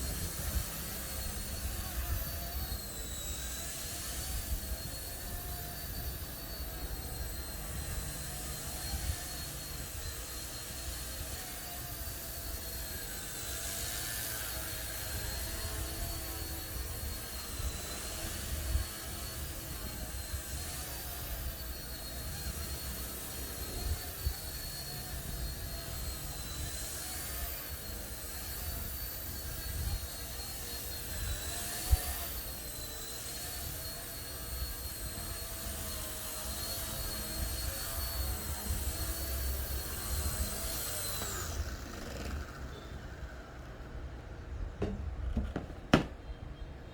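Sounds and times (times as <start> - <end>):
rc helicopter motor whine: 0.0 - 46.2.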